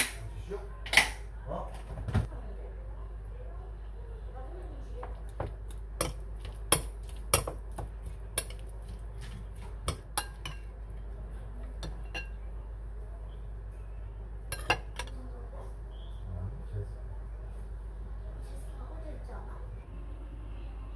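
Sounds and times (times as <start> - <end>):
dishes and utensils clinking: 9.8 - 10.8, 11.6 - 12.4, 14.5 - 15.2.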